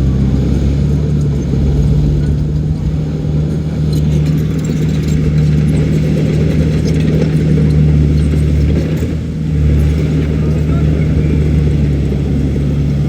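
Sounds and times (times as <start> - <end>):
diesel engine under load: 0.0 - 13.0
light metallic clatter: 0.5 - 12.2.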